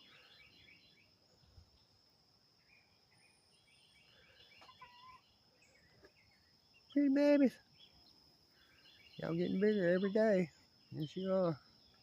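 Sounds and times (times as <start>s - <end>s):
chicks peeping: 4.5s - 5.2s.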